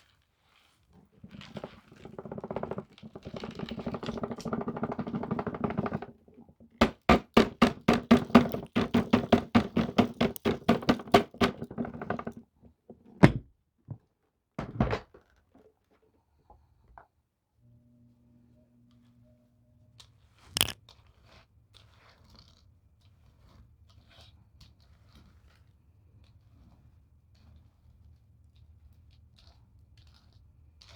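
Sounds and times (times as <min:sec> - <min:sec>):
debris clicking in hose: 0:20.5 - 0:20.8.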